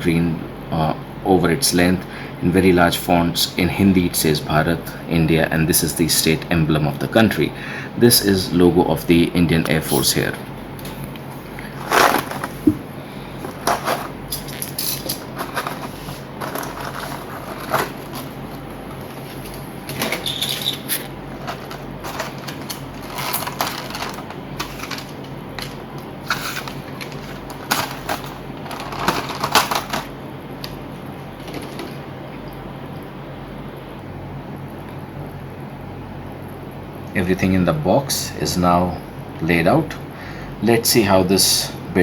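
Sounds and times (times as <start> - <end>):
steady low hum: 0.0 - 42.0
packaging rustling: 11.6 - 30.2.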